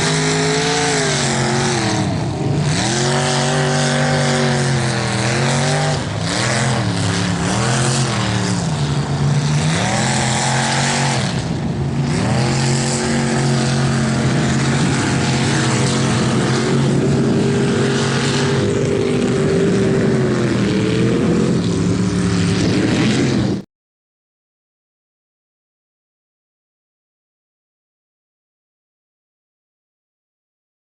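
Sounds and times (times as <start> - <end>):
truck engine revving: 0.0 - 23.6.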